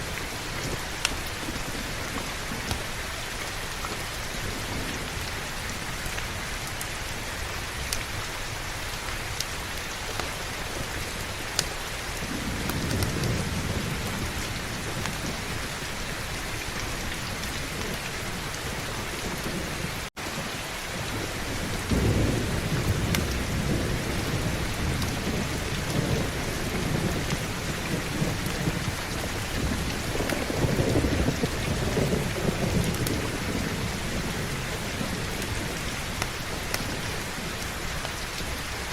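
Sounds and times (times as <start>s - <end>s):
heavy rain: 0.0s - 38.9s
rolling thunder: 12.2s - 37.7s.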